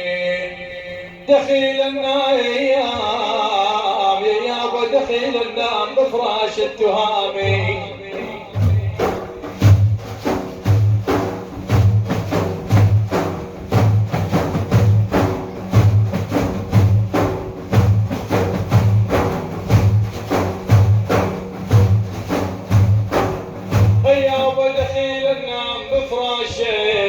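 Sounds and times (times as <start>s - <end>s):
frame drums playing: 7.4s - 25.4s.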